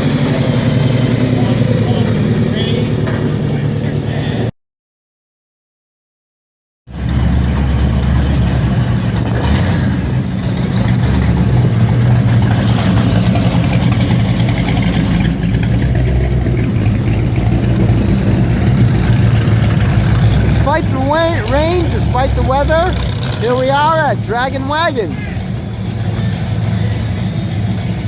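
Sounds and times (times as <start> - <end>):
car engine idling: 0.0 - 4.4, 10.1 - 28.0.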